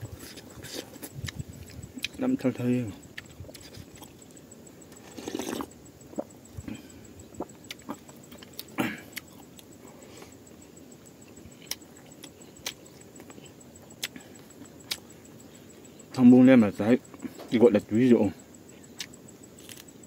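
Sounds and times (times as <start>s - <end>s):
faint steady hiss: 0.0s - 20.0s
chewing and wet mouth smacks: 3.2s - 4.3s, 7.4s - 9.7s.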